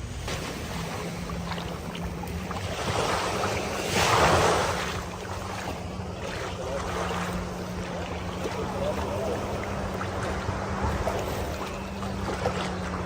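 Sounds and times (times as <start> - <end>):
motorboat engine hum: 0.0 - 13.0
rushing water: 0.0 - 13.0.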